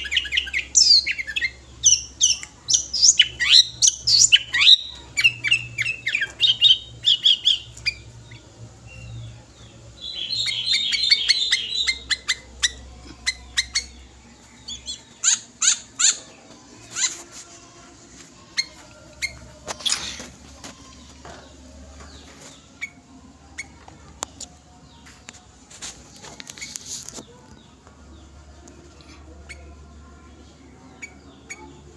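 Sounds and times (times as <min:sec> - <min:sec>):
bird chattering notes: 0:10.1 - 0:14.1, 0:14.7 - 0:17.2.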